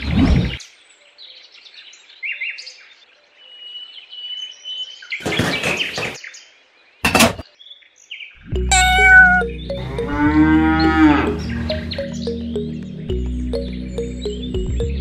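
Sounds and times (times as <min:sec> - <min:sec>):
birds chirping and whistling: 0:08.7 - 0:15.0
cow mooing: 0:08.8 - 0:11.8.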